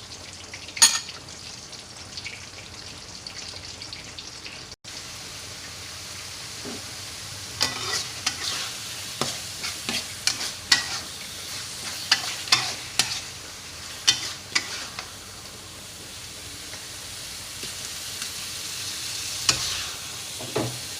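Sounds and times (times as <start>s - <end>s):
food sizzling in a pan: 0.0s - 20.9s
spatula clacking and scraping pan: 7.6s - 13.3s, 14.0s - 15.1s, 19.5s - 20.8s.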